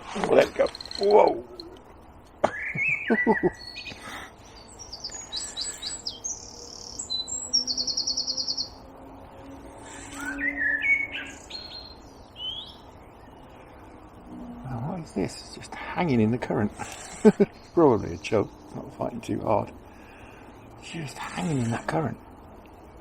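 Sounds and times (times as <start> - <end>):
bird trill: 0.0 - 15.6
songbirds chirping and whistling: 0.0 - 23.0.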